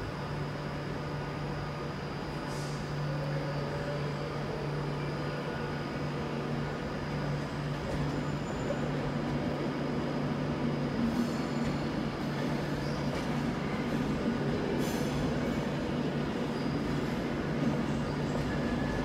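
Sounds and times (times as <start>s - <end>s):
train hum and rumble: 0.0s - 19.0s
train wheel squeals: 7.2s - 9.4s, 11.1s - 19.0s.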